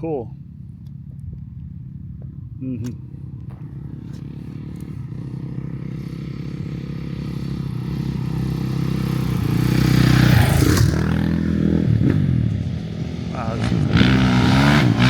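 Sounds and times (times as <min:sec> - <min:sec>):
motorcycle engine passing: 0:03.0 - 0:15.0.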